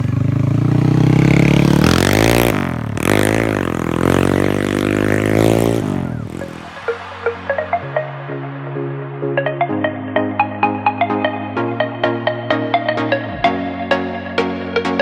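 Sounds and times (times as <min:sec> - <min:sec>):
motorcycle engine revving: 0:00.0 - 0:07.8.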